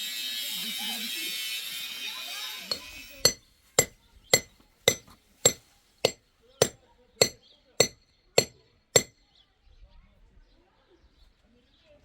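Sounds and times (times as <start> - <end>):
hammer blows on metal: 2.7 - 9.2.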